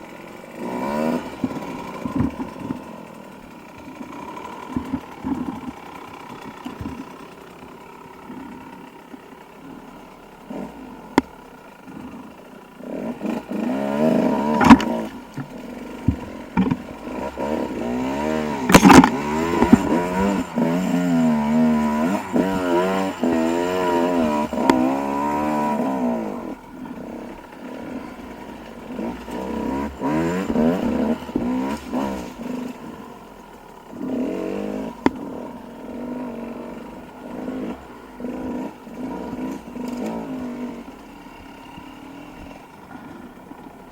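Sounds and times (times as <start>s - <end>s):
dirt bike engine revving: 0.0s - 43.9s
sharp knocks: 14.4s - 17.2s.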